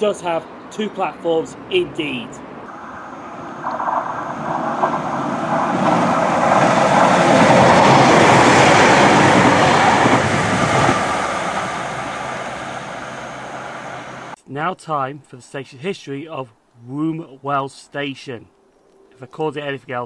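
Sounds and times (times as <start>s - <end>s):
diesel train passing: 0.0s - 14.4s.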